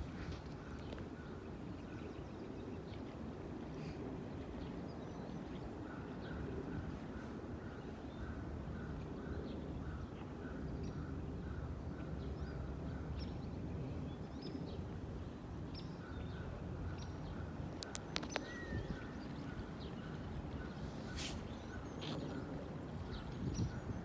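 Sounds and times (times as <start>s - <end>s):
sharp clicks: 17.8s - 18.5s
small birds chirping: 17.8s - 22.5s
brief hiss: 21.1s - 21.4s.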